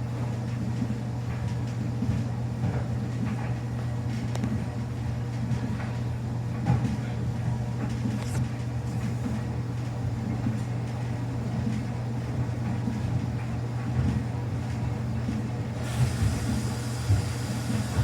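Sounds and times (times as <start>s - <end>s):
washing machine motor hum: 0.0s - 18.0s
washing machine drum churning: 8.9s - 18.0s.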